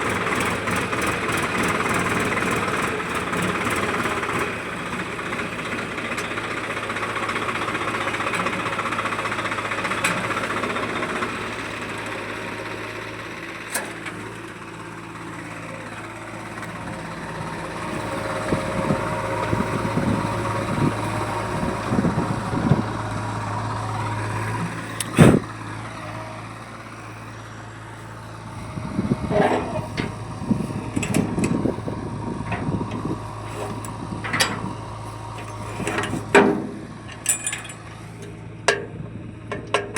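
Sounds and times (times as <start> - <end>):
heavy machine engine running: 0.0 - 39.9
clattering knocks: 35.4 - 37.8.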